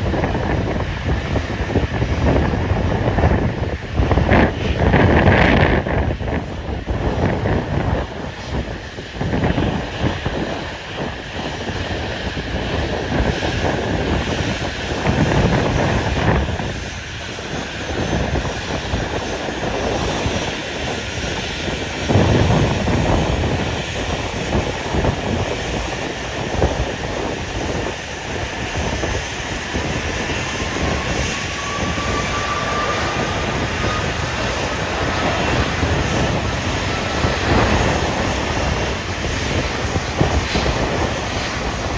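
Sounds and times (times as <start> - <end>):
jet engines running: 0.0 - 41.9
wind buffeting microphone: 0.0 - 41.9.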